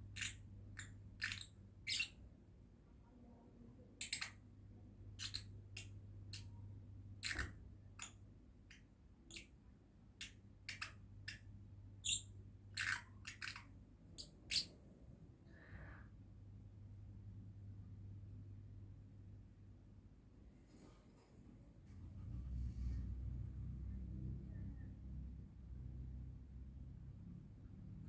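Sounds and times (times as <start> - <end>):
lovebird chirping: 0.2 - 2.2, 5.2 - 6.5, 10.7 - 14.7.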